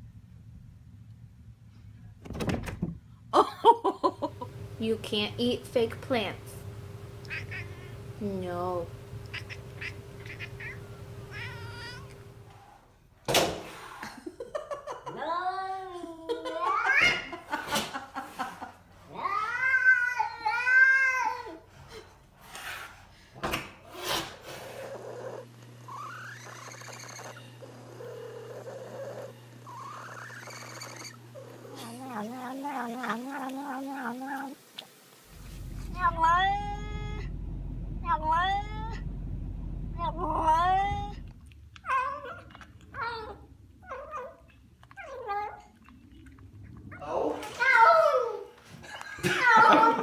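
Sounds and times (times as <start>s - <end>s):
steady low hum: 3.1s - 13.2s, 35.2s - 49.2s
cat meowing: 9.3s - 12.2s.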